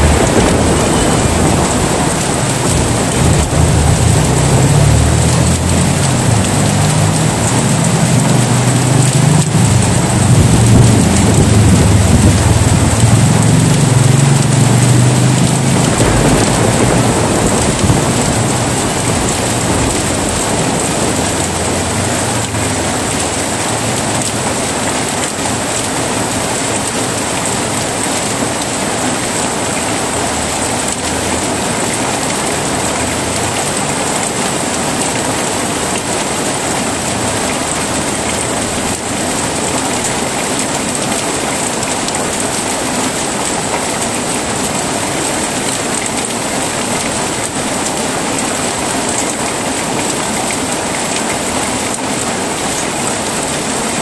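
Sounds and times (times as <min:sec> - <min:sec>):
low rumble of thunder: 0:00.0 - 0:24.4
heavy rain falling: 0:00.0 - 0:54.0.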